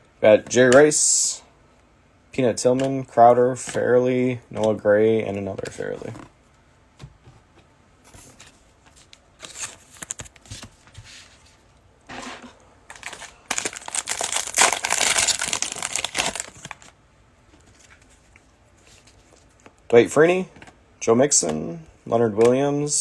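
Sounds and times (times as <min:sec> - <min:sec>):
foil wrapper crinkling and tearing: 0:12.9 - 0:16.9.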